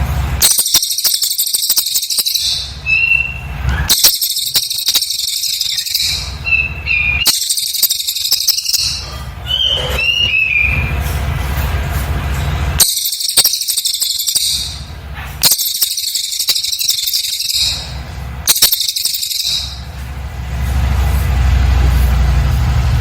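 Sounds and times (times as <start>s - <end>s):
bird singing high-pitched notes: 0.4s - 11.1s, 12.8s - 20.0s.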